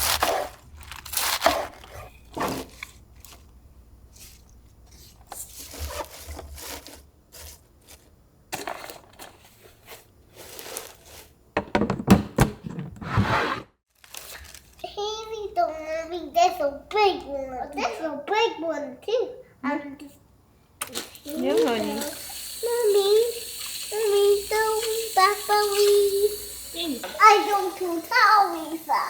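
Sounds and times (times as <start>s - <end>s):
kitchen containers being handled: 0.0s - 3.5s, 4.1s - 13.5s.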